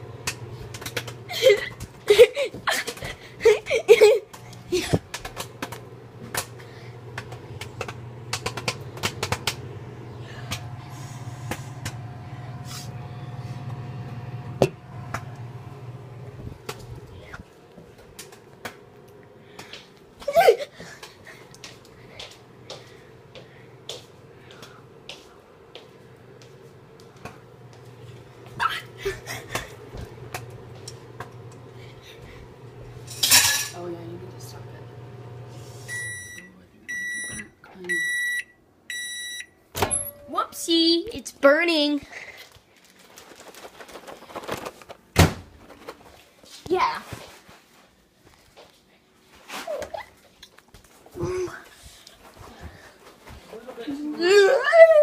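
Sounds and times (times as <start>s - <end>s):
popcorn popping: 0.0s - 3.1s, 4.3s - 10.8s
microwave oven humming: 0.0s - 42.3s.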